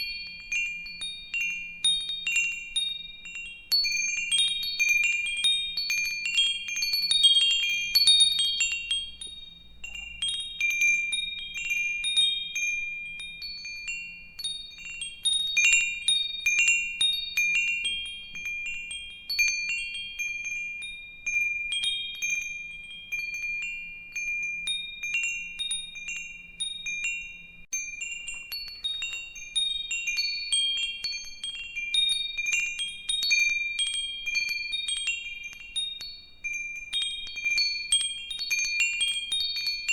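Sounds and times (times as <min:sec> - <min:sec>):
wind chimes ringing: 0:00.0 - 0:39.9.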